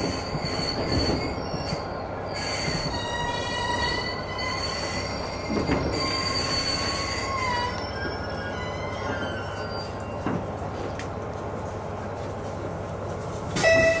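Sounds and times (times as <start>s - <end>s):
train wheel and brake squeal: 0.0s - 10.5s, 13.5s - 14.0s.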